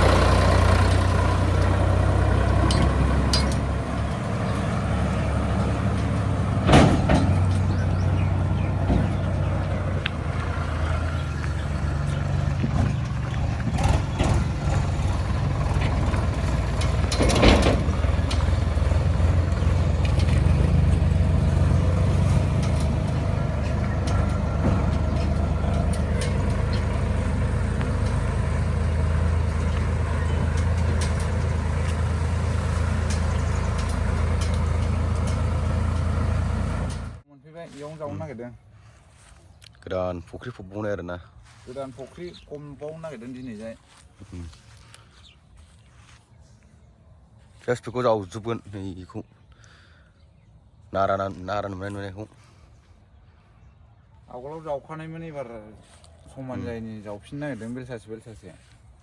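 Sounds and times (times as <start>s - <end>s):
tractor diesel engine running: 0.0s - 39.4s.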